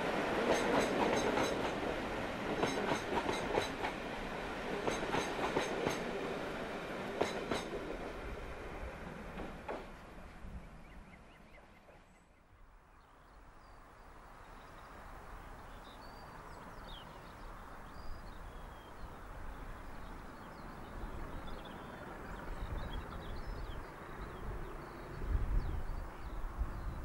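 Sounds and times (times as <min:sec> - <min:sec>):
outdoor background rush: 0:00.0 - 0:27.0
birds chirping: 0:10.6 - 0:27.0.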